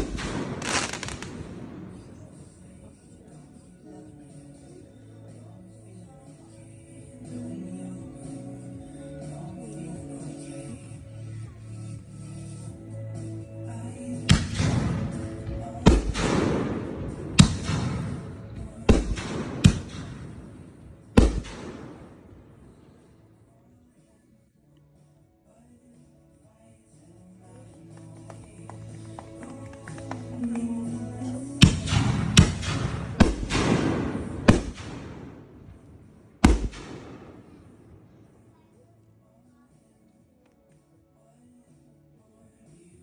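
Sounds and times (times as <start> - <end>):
fireworks crackling hiss: 0.0 - 2.6
fireworks bangs with echo: 0.0 - 2.7, 14.3 - 22.8, 31.6 - 38.4.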